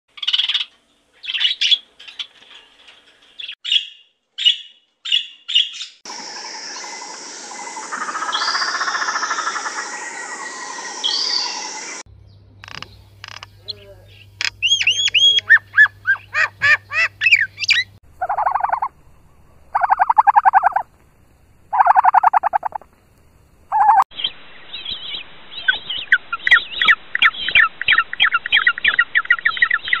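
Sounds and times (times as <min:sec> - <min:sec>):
rapid pulsed bird calls: 0:03.6 - 0:20.9, 0:21.7 - 0:22.9, 0:23.7 - 0:30.0
bird whistled calls: 0:14.6 - 0:18.9.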